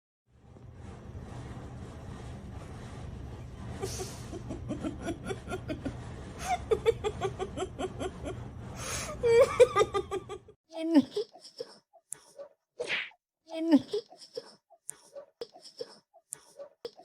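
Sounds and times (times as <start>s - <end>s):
person laughing: 3.8s - 11.7s, 13.6s - 14.6s.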